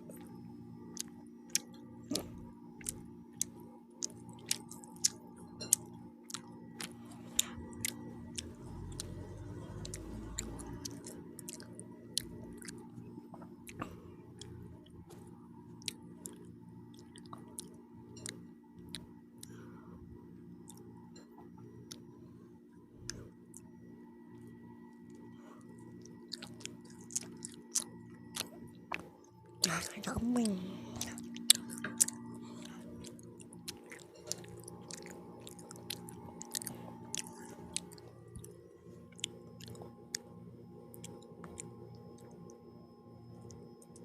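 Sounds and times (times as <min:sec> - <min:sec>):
person chewing with mouth smacks: 0:00.9 - 0:14.6, 0:15.8 - 0:19.5, 0:20.6 - 0:20.8, 0:26.0 - 0:40.3, 0:40.9 - 0:42.4.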